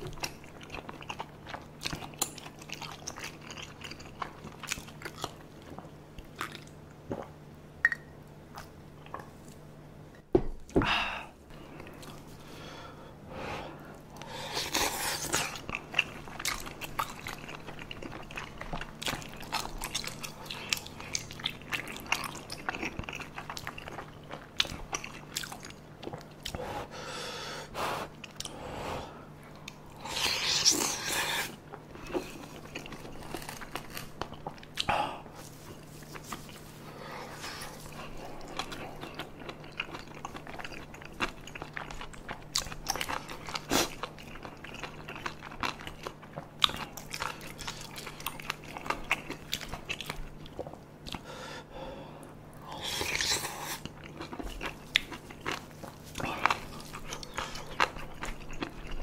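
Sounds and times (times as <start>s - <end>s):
mouth chewing with wet smacks: 0.0s - 9.4s, 14.6s - 26.6s, 37.8s - 51.3s, 53.0s - 59.0s.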